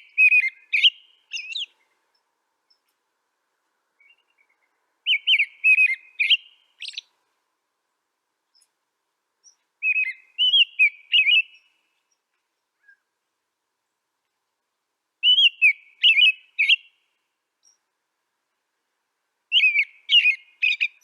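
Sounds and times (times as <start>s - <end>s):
songbird warbling: 0.0s - 2.0s, 4.0s - 7.1s, 9.4s - 11.8s, 15.2s - 17.0s, 19.5s - 21.0s.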